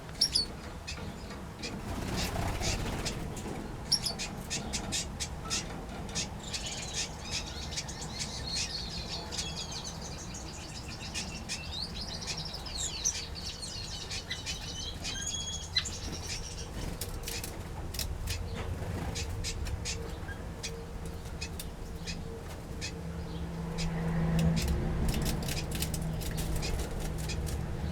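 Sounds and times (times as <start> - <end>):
wing flutters: 1.8 - 3.3.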